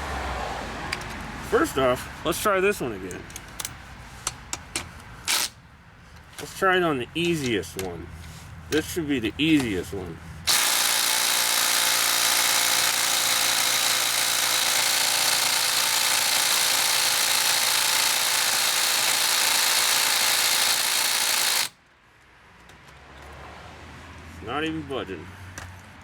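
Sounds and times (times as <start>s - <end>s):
impact driver hammering: 10.5s - 21.7s.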